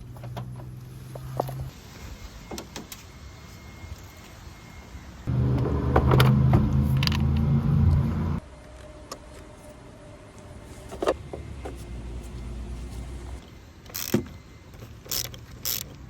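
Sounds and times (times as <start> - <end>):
car engine idling: 5.3 - 8.4
starter motor cranking: 15.0 - 16.0.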